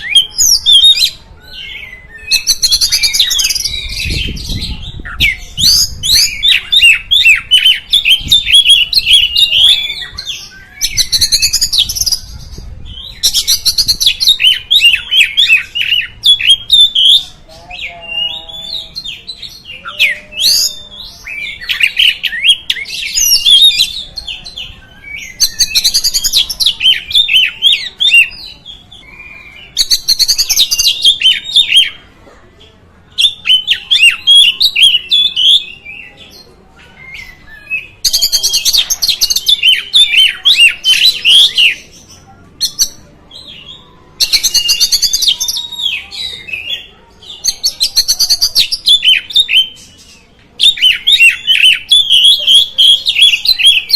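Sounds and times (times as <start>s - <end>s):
magpie-robin singing: 0.0s - 32.0s, 33.1s - 53.9s.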